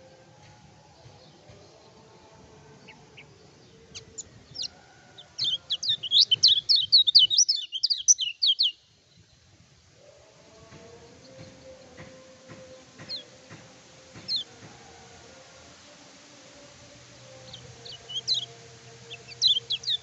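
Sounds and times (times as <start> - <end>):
bird chirps: 5.4 - 9.0, 14.2 - 14.5, 17.4 - 20.0
bird singing high notes: 17.4 - 20.0.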